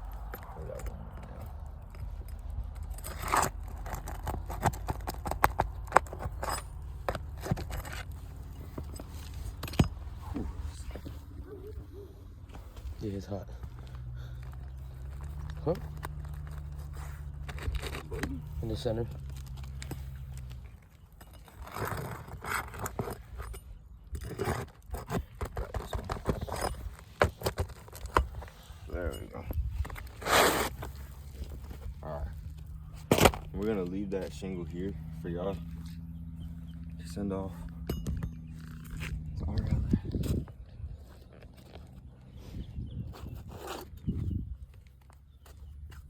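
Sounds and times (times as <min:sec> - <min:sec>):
shingles tearing: 0:02.6 - 0:11.1, 0:14.9 - 0:23.5, 0:24.1 - 0:28.8, 0:29.8 - 0:33.5
roofing shingles scraping: 0:29.9 - 0:31.9.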